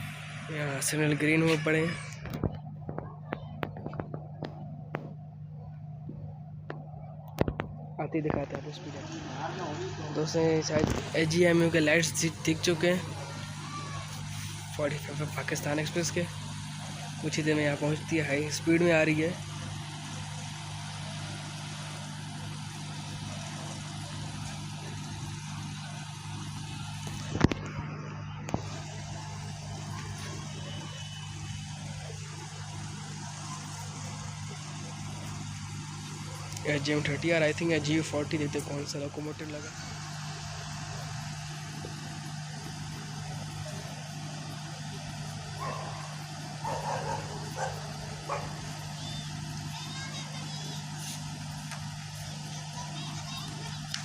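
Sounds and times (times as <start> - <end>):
low engine hum: 0.0 - 54.0
dog barking: 45.6 - 48.6.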